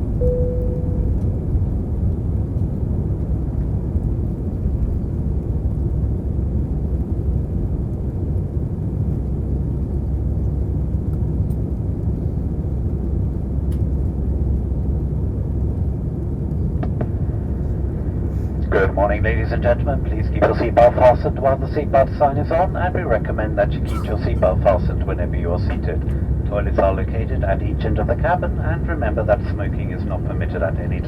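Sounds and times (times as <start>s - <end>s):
aircraft cabin engine and airflow noise: 0.0s - 31.0s
brief steady tone: 0.2s - 1.3s.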